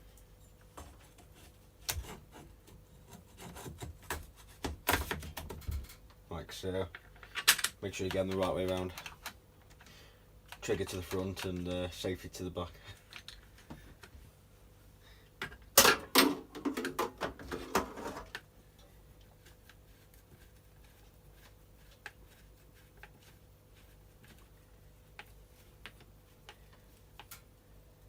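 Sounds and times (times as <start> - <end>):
clicks and knocks of plastic parts: 3.8 - 6.2, 6.8 - 9.9.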